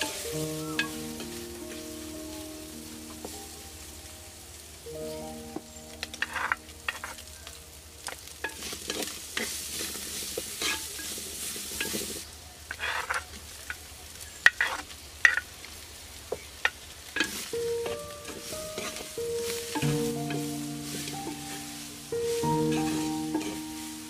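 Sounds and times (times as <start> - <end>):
food sizzling in a pan: 0.0 - 24.0
utensil scraping a pan: 6.2 - 7.2, 8.4 - 13.3, 14.5 - 15.4, 17.2 - 24.0.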